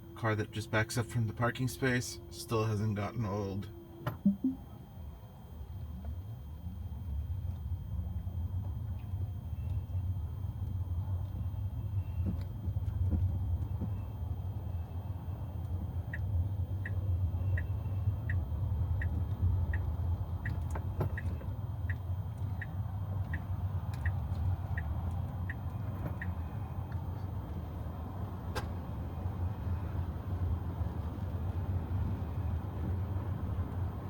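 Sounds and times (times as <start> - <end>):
road and tyre noise: 5.0 - 34.0
turn signal ticking: 15.6 - 27.1.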